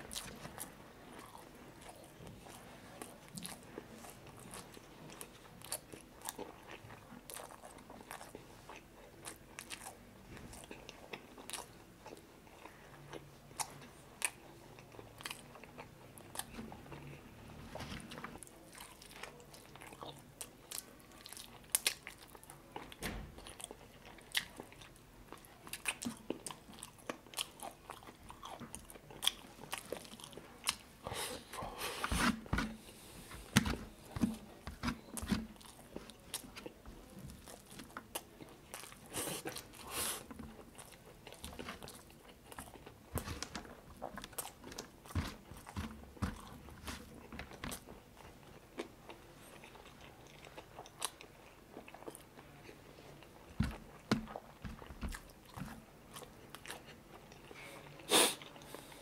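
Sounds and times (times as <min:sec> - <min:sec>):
person biting and chewing food: 0:25.7 - 0:48.9.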